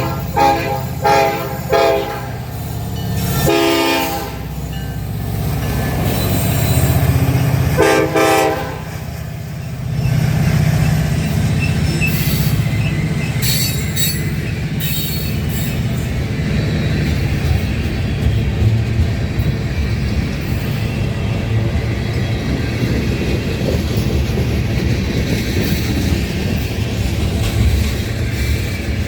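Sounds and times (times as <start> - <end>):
train horn blast: 0.0 - 2.5, 3.4 - 4.6, 7.8 - 9.0
freight train rumbling: 0.0 - 29.0
high wheel squeal: 5.6 - 7.2, 9.6 - 17.8.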